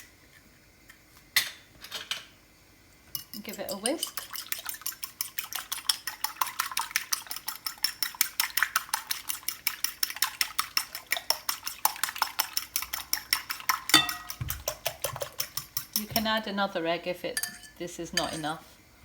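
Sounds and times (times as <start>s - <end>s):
whisk clicking against bowl: 3.2s - 16.6s.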